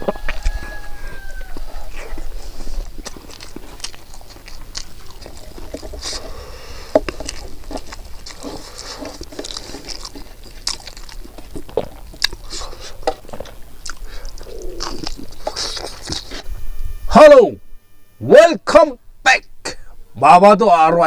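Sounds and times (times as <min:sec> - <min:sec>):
person chewing food: 0:00.0 - 0:16.5
crunchy clicks: 0:00.1 - 0:16.5.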